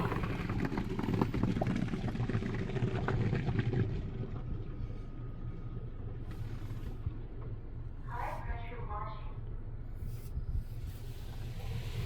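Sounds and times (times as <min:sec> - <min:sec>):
steady low rumble: 0:00.0 - 0:12.0
water spray hissing on car: 0:10.8 - 0:12.0.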